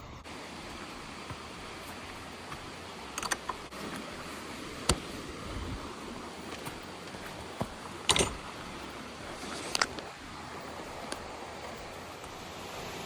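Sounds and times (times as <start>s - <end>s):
outdoor background noise: 0.0s - 13.0s
sharp clicks and taps: 2.6s - 3.7s.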